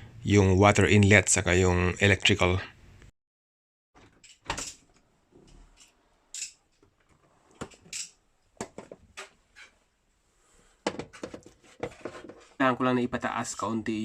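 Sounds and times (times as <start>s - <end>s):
dishwasher knocks and scrapes: 10.8s - 12.5s.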